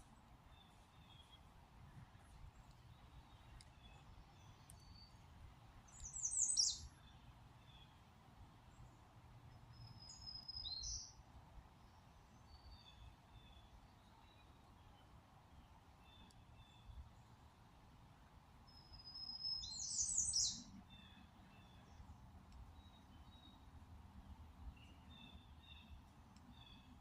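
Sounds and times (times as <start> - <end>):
bird chirps: 5.9 - 7.9, 9.7 - 11.2, 18.7 - 22.1.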